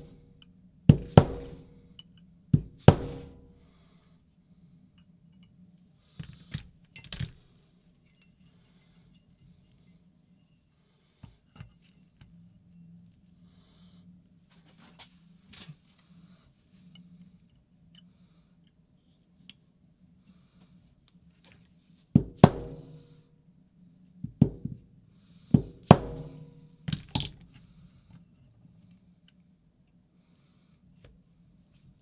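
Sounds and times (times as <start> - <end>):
sharp knocks on metal: 0.9 - 1.8, 2.6 - 3.5, 22.2 - 23.0, 25.6 - 26.6.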